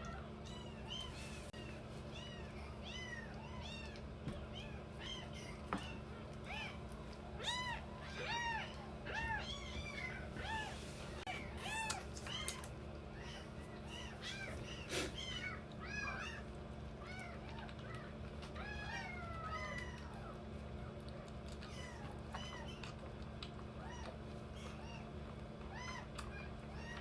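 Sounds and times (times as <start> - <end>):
kittens mewing: 0.0 - 20.4
faint steady hum: 0.0 - 27.0.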